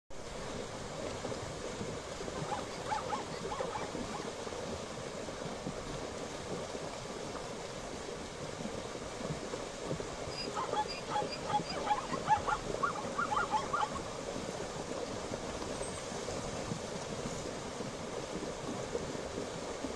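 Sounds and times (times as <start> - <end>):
zebra yelping barks: 2.4 - 4.3, 10.4 - 14.0.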